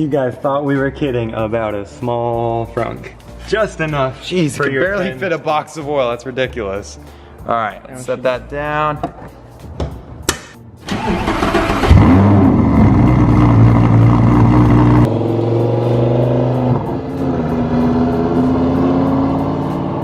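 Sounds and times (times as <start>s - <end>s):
car engine starting and revving: 10.8s - 20.0s.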